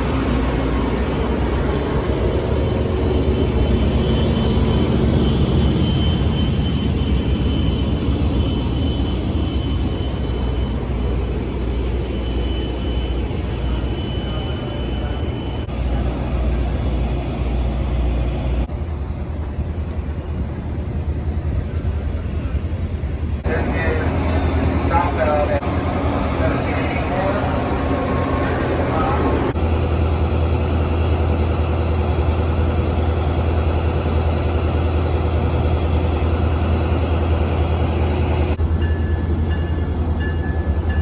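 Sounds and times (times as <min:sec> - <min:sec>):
large vehicle engine rumble: 0:18.5 - 0:30.0.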